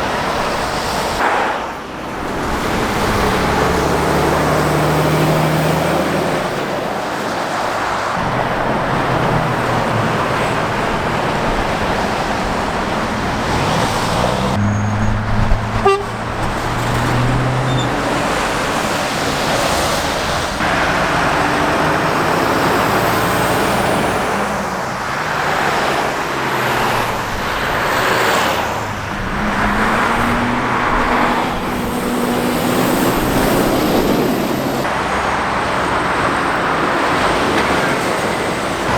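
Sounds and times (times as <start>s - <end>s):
heavy road traffic passing: 0.0s - 38.9s
vehicle horn: 14.5s - 16.7s.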